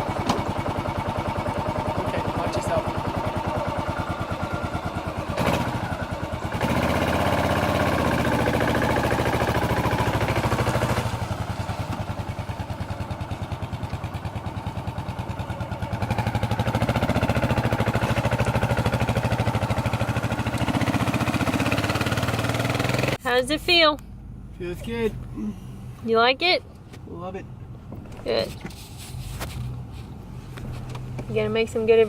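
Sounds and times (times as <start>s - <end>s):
motorcycle engine revving: 0.0s - 23.3s.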